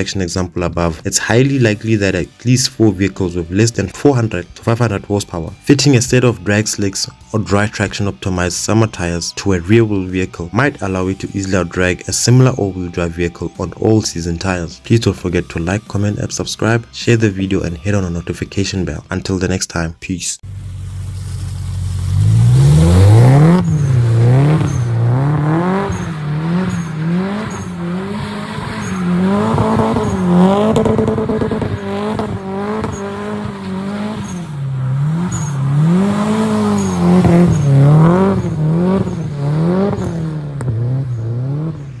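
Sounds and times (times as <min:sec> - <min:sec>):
car engine revving hard: 0:22.0 - 0:42.0.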